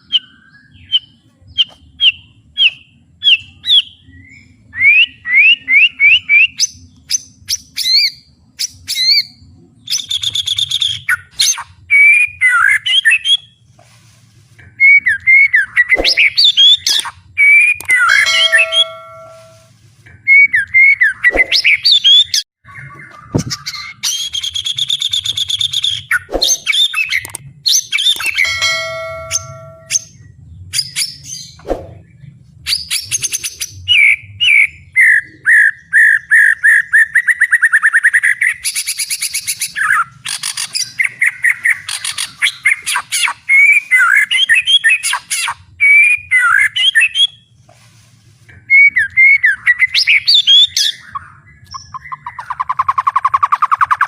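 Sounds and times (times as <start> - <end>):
bird singing whistles and rattles: 14.8 - 30.2, 32.7 - 47.5, 48.7 - 54.0.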